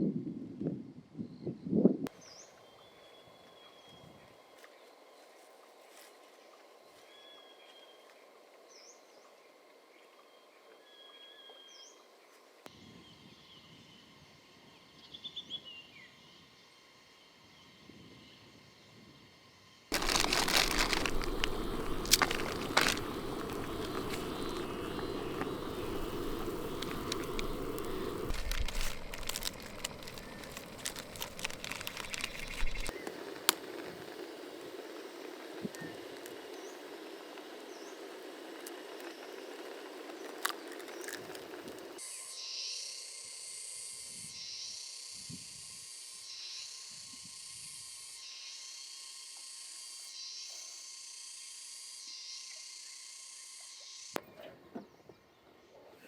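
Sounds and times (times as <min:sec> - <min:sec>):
birds chirping: 0:19.9 - 0:42.0
loud crackling with clicks and pops: 0:19.9 - 0:42.0.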